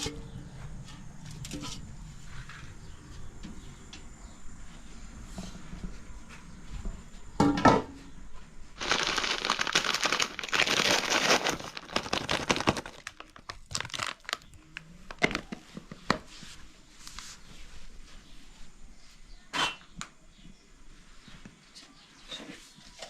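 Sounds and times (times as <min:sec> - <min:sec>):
crinkling and rustling: 0:08.8 - 0:17.4.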